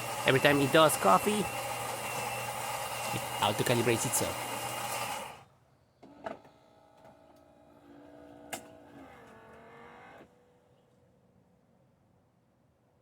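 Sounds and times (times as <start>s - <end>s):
motor whirring: 0.0s - 5.4s.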